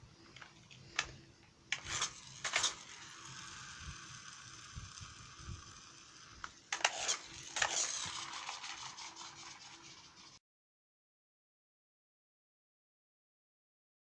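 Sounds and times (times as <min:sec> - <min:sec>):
steady background hiss: 0:00.0 - 0:10.4
plastic toy clicks and rattles: 0:00.4 - 0:10.4.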